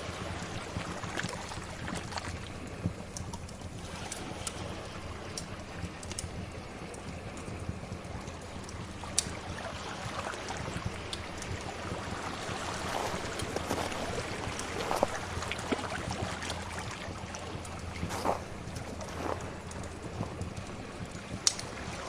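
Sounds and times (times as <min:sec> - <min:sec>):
fire crackling: 0:00.0 - 0:22.0
sea waves: 0:08.9 - 0:22.0.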